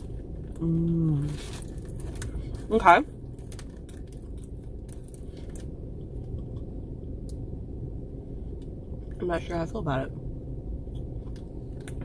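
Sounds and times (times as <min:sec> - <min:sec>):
low hum inside a car: 0:00.0 - 0:12.0
person chewing softly: 0:03.3 - 0:07.4.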